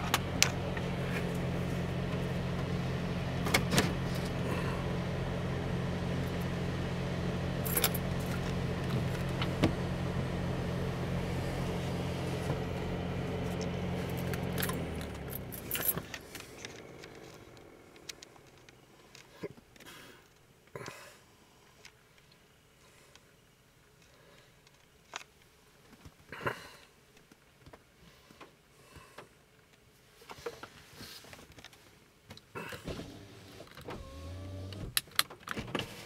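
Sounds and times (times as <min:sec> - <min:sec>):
car engine idling hum: 0:00.0 - 0:26.0, 0:26.9 - 0:36.0
handling clicks and rattles: 0:13.4 - 0:20.4.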